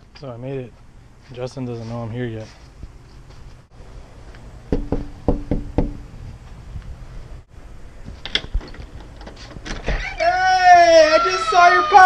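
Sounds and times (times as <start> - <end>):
knocking on a door: 4.7 - 6.0.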